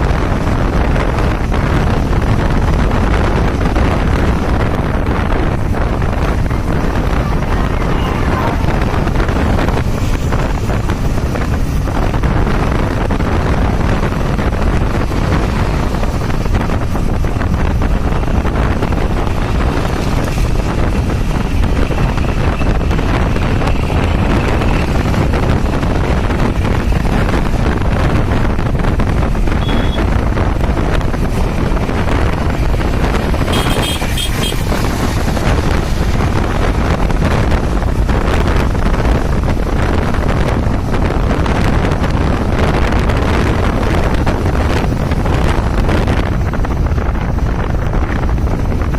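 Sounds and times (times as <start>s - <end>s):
road and traffic noise: 0.0s - 48.9s
wind buffeting microphone: 0.0s - 48.9s
short high-pitched tones: 29.6s - 30.0s.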